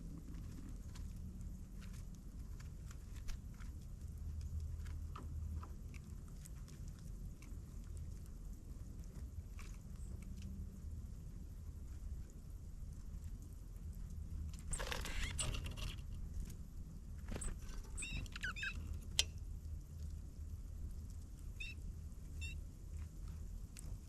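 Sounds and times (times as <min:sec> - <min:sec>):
steady low rumble: 0:00.0 - 0:24.0
small birds chirping: 0:18.0 - 0:18.9.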